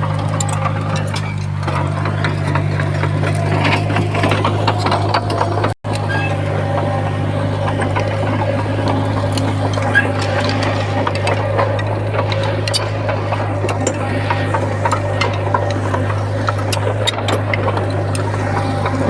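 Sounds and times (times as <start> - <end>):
bulldozer diesel engine: 0.0 - 19.0
steel tracks clanking: 0.0 - 19.0.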